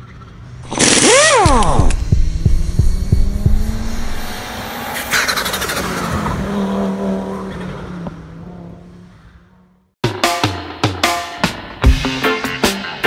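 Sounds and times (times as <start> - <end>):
race car engine revving: 0.1 - 9.9.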